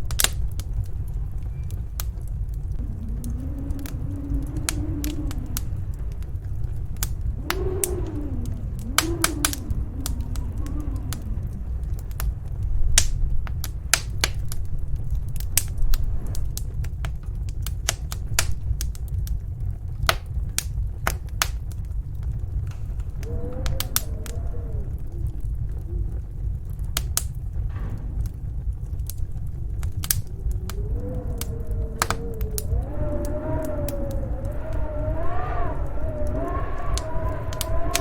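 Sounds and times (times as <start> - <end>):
howling wind gust: 0.0 - 38.0
low rumble of storm wind: 0.0 - 38.0
wood fire crackling: 0.0 - 38.0.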